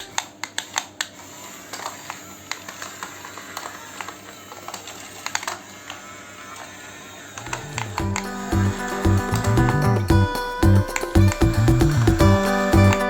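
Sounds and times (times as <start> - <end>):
small electric motors whirring: 0.0 - 10.2.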